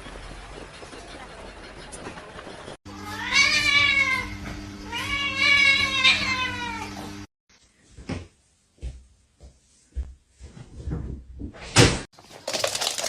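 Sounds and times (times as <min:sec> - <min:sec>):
cat meowing: 0:03.0 - 0:07.0.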